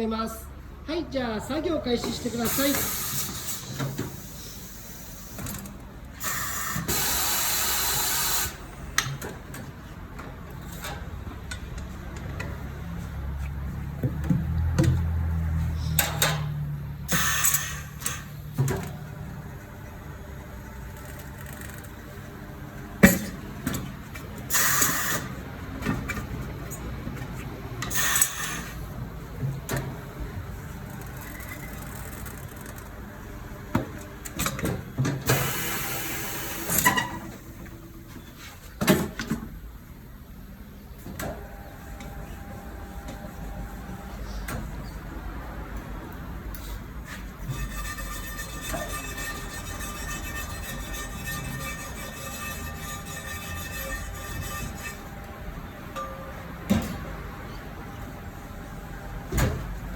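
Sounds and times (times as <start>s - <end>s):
compressed air hissing: 6.2s - 8.6s.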